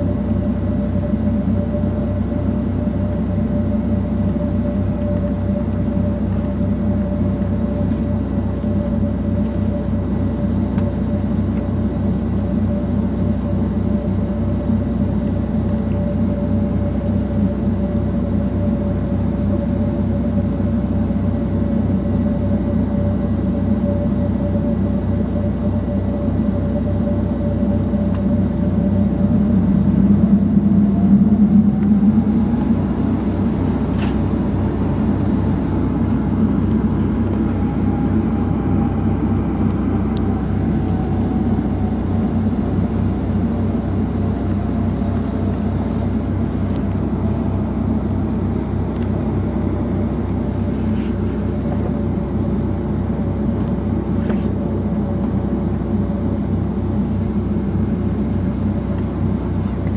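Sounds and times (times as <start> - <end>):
aircraft cabin drone: 0.0 - 59.9
thin whine rising in pitch: 22.3 - 59.9.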